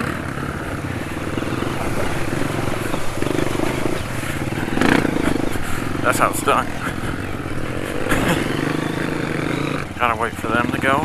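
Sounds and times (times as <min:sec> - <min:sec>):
dirt bike engine thumping: 0:00.0 - 0:10.2.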